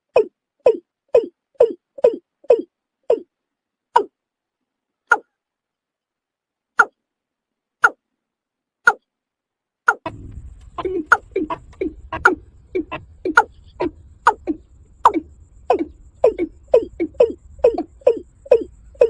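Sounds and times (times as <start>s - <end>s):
low background noise: 0.0s - 19.0s
bird calling falling notes: 9.9s - 19.0s.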